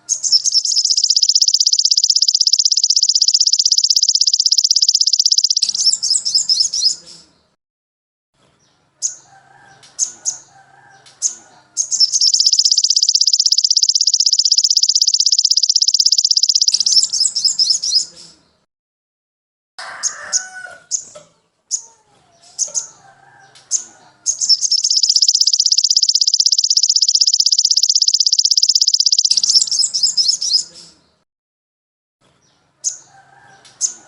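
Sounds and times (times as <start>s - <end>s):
songbird rapid high trill: 0.0s - 7.0s, 11.8s - 18.1s, 24.3s - 30.7s
songbird twittering: 0.0s - 7.3s, 11.2s - 18.4s, 23.7s - 31.0s
sharp bird chirps: 0.0s - 7.5s, 11.2s - 18.7s, 22.6s - 31.2s.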